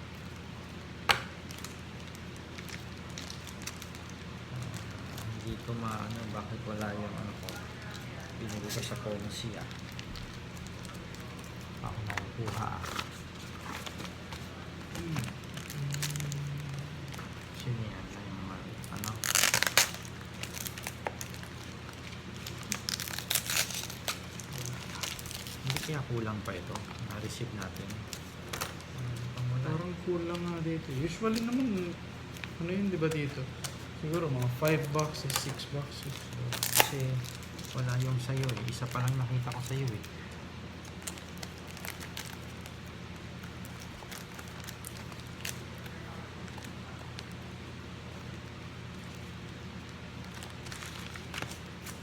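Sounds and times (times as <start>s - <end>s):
low hum: 0.0s - 34.3s
packaging crinkling: 0.1s - 52.0s.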